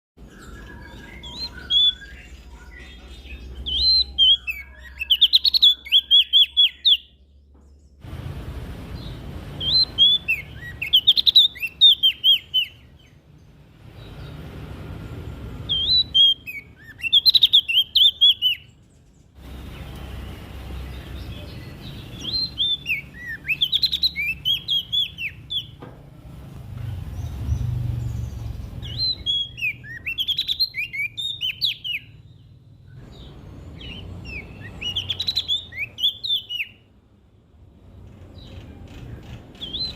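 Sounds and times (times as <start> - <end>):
warbler singing: 0.2 - 37.0, 37.8 - 39.9
low background hum: 7.2 - 11.8.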